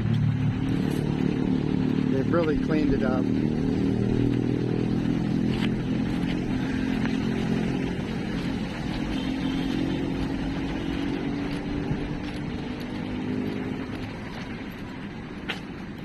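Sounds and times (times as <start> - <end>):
low engine hum: 0.0 - 16.0
outdoor noise: 0.0 - 16.0.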